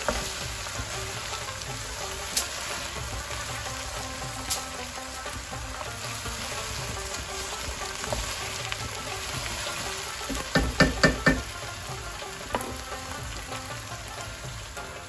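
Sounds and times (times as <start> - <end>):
okra sizzling in hot oil: 0.0 - 15.0
spoon knocking on pot: 10.3 - 11.6.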